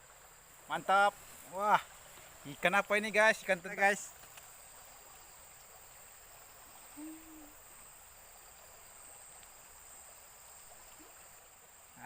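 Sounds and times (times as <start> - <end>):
high-pitched insect drone: 6.8 - 8.0
low hoot: 7.0 - 7.6.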